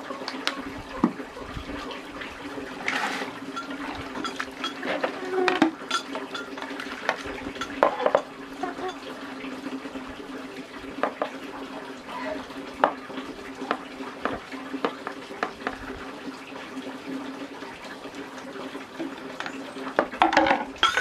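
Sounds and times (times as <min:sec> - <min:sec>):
running water: 0:00.0 - 0:21.0
kitchenware clinking and knocking: 0:02.9 - 0:06.8, 0:07.5 - 0:09.0, 0:19.5 - 0:21.0.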